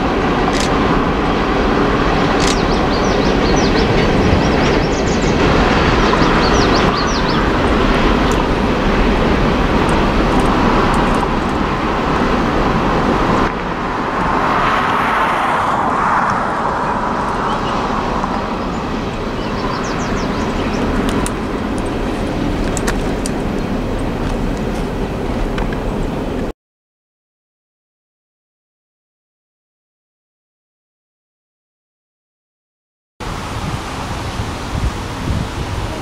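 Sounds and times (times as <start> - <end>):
freight train wheels rumbling: 0.0 - 26.5.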